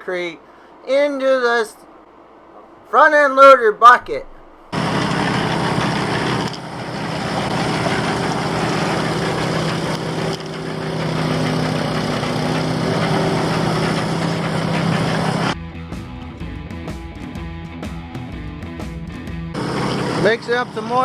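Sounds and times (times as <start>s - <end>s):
heavy machine engine idling: 4.7s - 15.6s.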